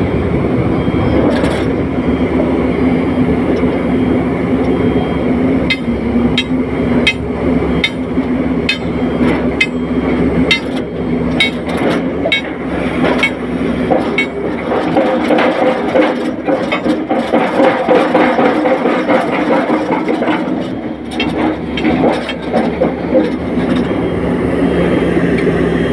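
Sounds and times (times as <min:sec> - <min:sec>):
mid-pitched machine whine: 0:00.0 - 0:15.2
heavy machinery engine drone: 0:00.0 - 0:25.9
sharp metallic knocks: 0:05.6 - 0:24.0.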